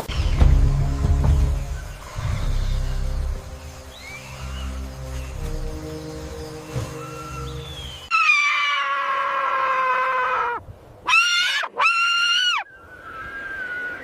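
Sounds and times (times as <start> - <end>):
animal high-pitched calls: 8.1 - 14.0.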